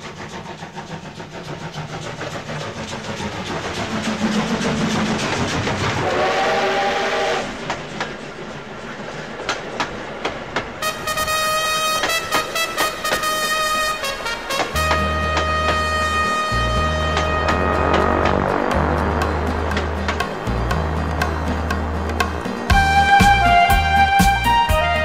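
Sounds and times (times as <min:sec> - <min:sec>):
train wheels clickety-clack: 0:00.0 - 0:25.0
train horn: 0:06.0 - 0:07.7, 0:10.8 - 0:19.4, 0:22.7 - 0:25.0
music: 0:10.9 - 0:25.0.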